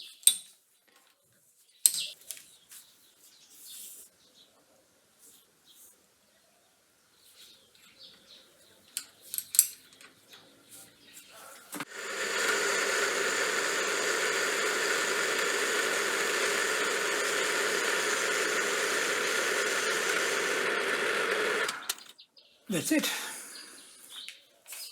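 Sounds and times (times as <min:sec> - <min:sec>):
lathe motor humming: 0:11.8 - 0:22.1.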